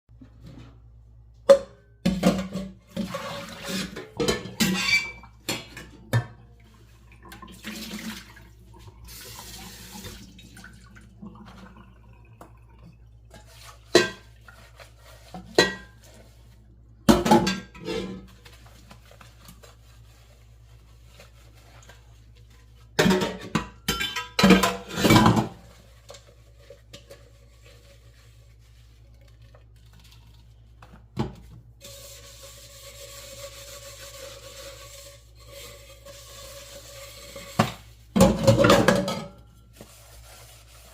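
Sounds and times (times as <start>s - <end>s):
dishes clattering in sink: 0.2s - 8.4s, 13.3s - 16.4s, 17.0s - 18.6s, 22.8s - 27.9s, 35.7s - 39.7s.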